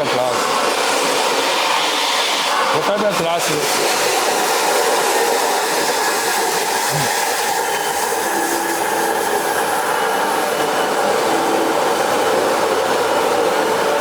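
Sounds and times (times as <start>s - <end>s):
machinery hiss: 0.0s - 14.0s.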